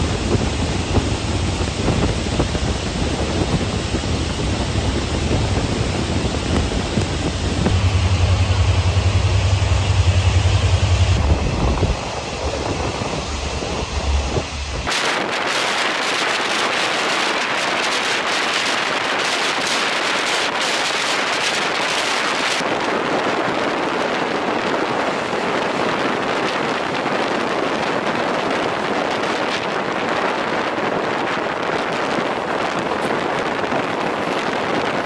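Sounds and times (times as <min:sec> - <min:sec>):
low rumble: 0:00.0 - 0:15.4
rushing air and train wheel noise: 0:00.0 - 0:35.0.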